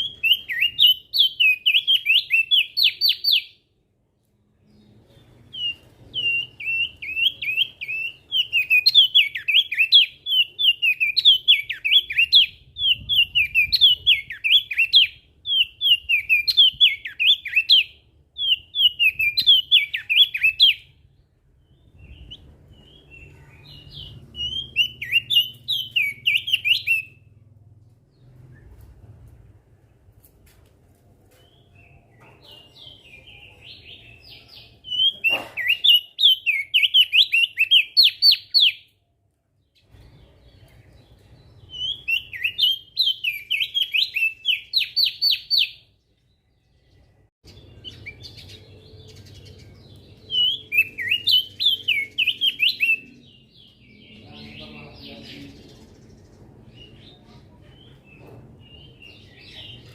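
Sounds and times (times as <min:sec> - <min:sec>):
bird singing whistled notes: 0:00.0 - 0:03.6, 0:04.7 - 0:27.4, 0:31.4 - 0:39.0, 0:39.8 - 0:46.0, 0:46.9 - 0:55.5
soft bird chirps: 0:00.0 - 0:30.1.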